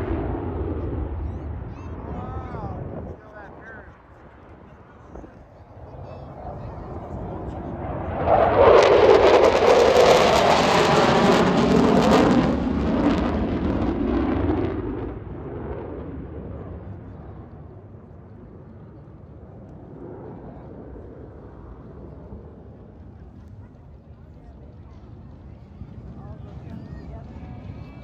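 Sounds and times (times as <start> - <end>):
fighter jet flying past: 0.0 - 23.7.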